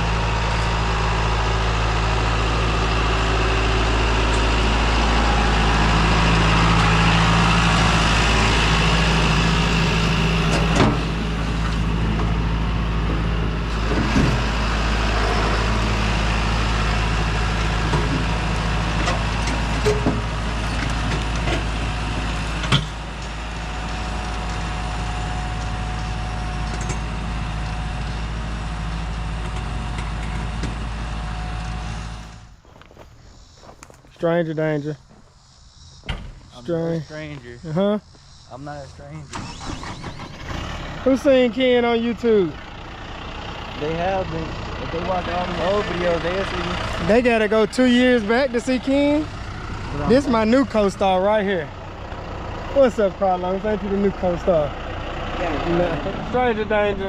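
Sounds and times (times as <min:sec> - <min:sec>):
tractor engine running: 0:00.0 - 0:57.0
metal knocks and clanks: 0:19.0 - 0:21.7.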